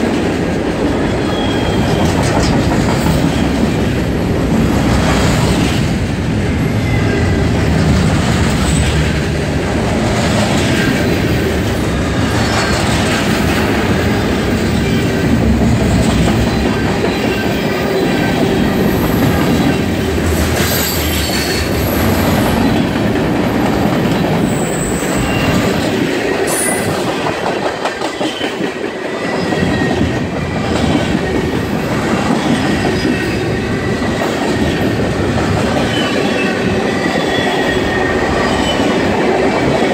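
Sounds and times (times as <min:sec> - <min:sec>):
train wheels rumbling and clattering: 0:00.0 - 0:39.9
high wheel squeals: 0:01.2 - 0:02.0.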